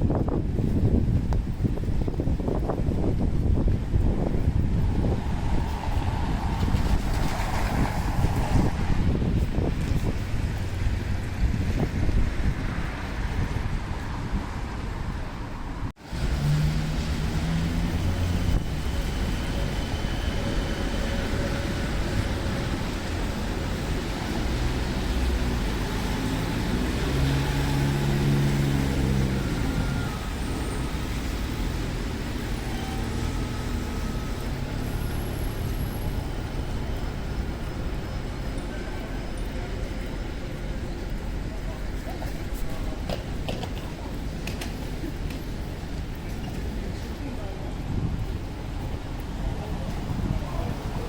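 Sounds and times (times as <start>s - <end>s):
heavy vehicle engine: 0.0s - 51.0s
passing vehicle engines: 0.0s - 51.0s
rain and wet road hiss: 16.0s - 51.0s.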